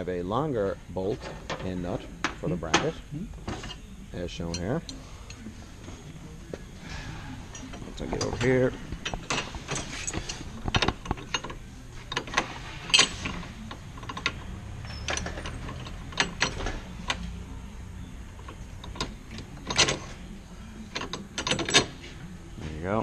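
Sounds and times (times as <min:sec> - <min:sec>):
low steady hum: 0:00.0 - 0:23.0
metallic clicks and clanks of tools: 0:07.5 - 0:17.4, 0:18.4 - 0:20.2, 0:20.9 - 0:22.0.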